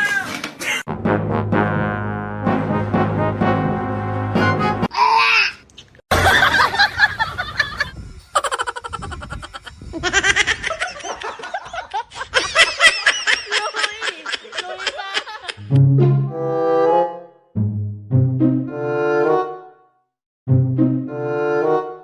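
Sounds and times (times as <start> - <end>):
person laughing: 6.2 - 15.7.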